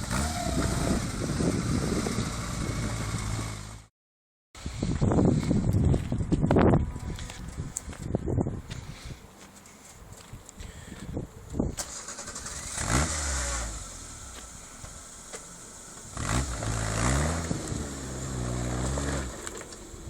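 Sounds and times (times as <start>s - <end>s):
off-road vehicle engine revving: 0.0s - 3.9s, 11.9s - 20.0s.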